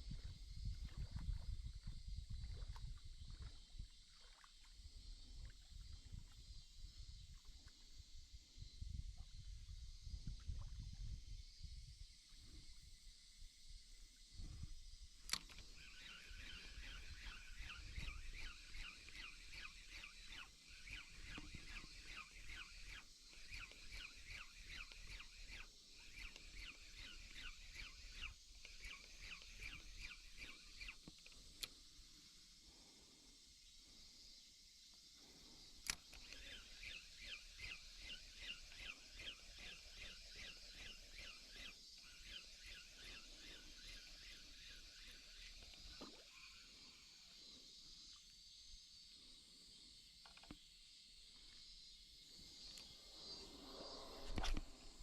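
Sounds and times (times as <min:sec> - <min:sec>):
sharp click: 0:15.2 - 0:15.7, 0:54.3 - 0:54.7
birds chirping: 0:15.5 - 0:31.2.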